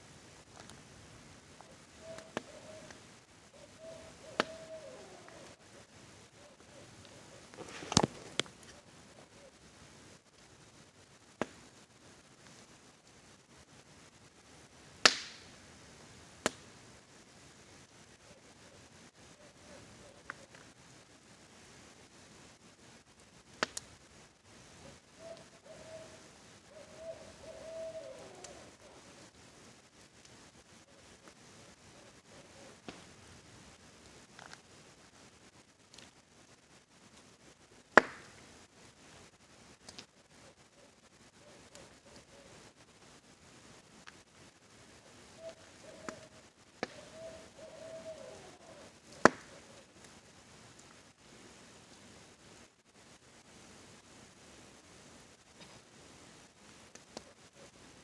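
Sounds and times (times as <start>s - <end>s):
rain hissing: 0.0s - 58.0s
campfire crackling and popping: 0.1s - 25.5s, 28.4s - 47.5s, 48.8s - 58.0s
owl hooting: 1.6s - 9.6s, 18.2s - 20.6s, 24.8s - 29.3s, 30.8s - 32.9s, 40.3s - 42.8s, 45.0s - 50.0s, 57.2s - 57.8s.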